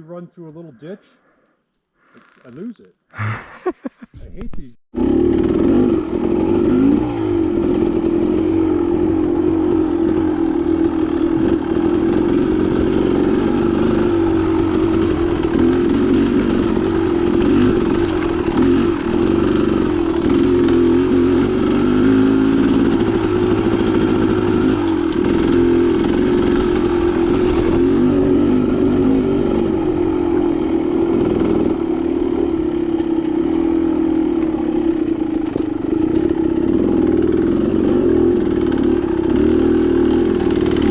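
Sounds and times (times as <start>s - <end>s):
dirt bike engine running: 5.0s - 40.9s.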